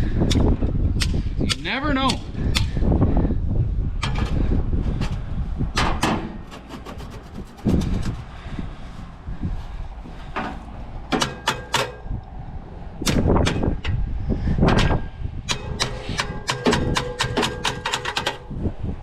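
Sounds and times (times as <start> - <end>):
metal tools knocking and clanking: 10.4 - 12.1, 14.7 - 18.5
sharp metal strikes: 11.1 - 12.1, 14.8 - 18.4.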